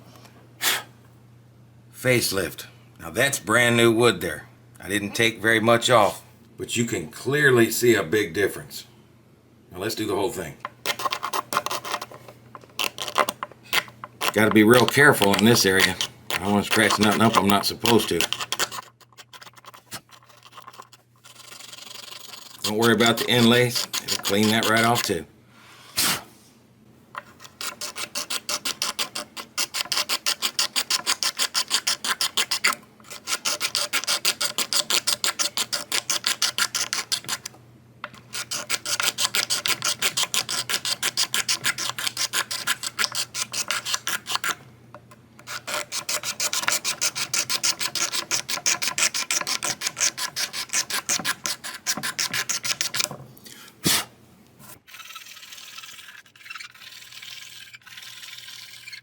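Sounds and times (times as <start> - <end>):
razor blade scraping wood: 10.8 - 25.2, 27.2 - 37.5, 38.2 - 44.6, 45.4 - 54.1, 54.8 - 59.0.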